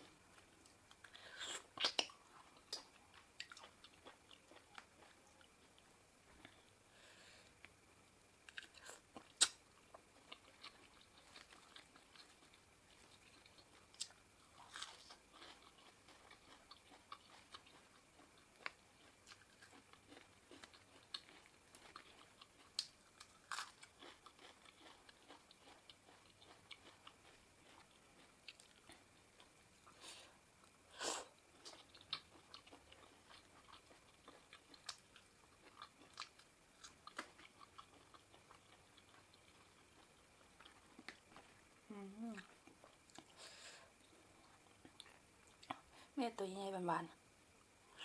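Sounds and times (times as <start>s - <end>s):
person chewing and biting food: 0.4s - 5.2s, 8.5s - 30.0s, 30.6s - 41.7s.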